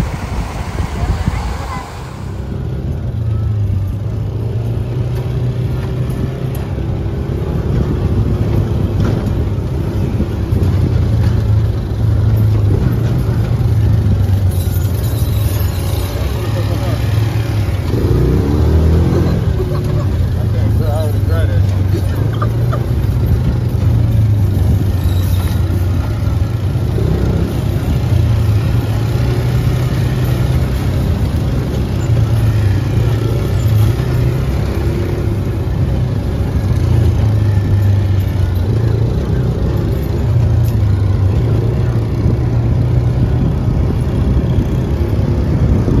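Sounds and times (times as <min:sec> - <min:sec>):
wind noise: 0:00.0 - 0:03.0, 0:42.2 - 0:46.0
road noise: 0:00.0 - 0:46.0
vehicle engine droning: 0:00.0 - 0:46.0.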